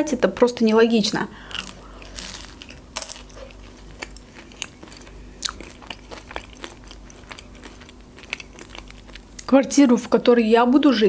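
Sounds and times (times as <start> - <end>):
person chewing crispy food: 1.4 - 9.5.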